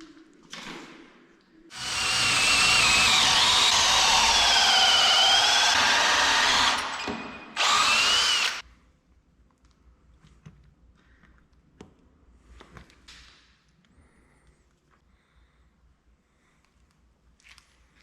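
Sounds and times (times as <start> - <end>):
electric drill whining: 1.7 - 8.6.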